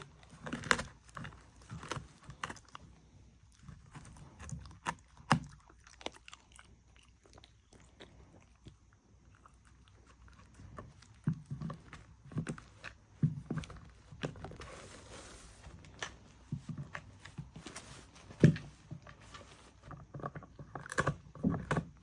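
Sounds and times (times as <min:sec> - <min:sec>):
dog chewing and crunching food: 0:00.0 - 0:22.0.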